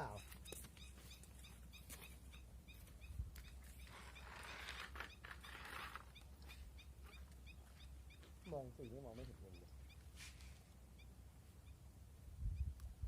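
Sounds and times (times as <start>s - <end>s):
small animal chirping: 0.0s - 10.0s.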